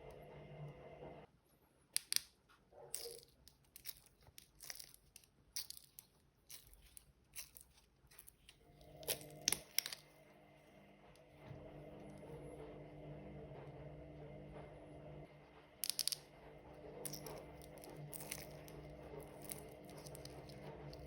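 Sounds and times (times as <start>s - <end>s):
washing machine motor hum: 0.0s - 1.3s, 8.6s - 21.0s.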